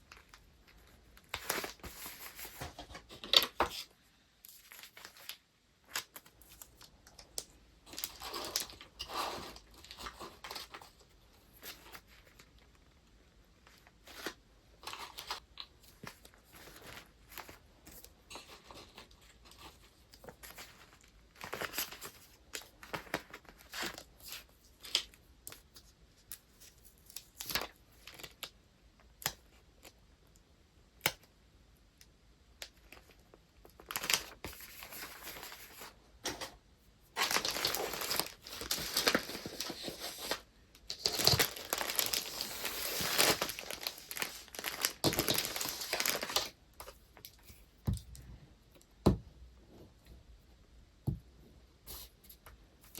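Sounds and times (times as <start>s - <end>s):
paper crinkling: 0.1s - 3.8s, 32.9s - 36.0s, 37.1s - 47.6s
paper rustling: 37.2s - 47.6s.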